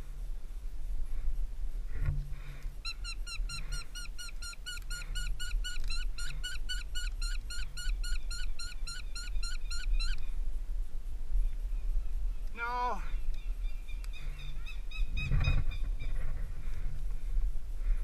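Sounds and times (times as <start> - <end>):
bird calling sharp notes: 2.8 - 10.3.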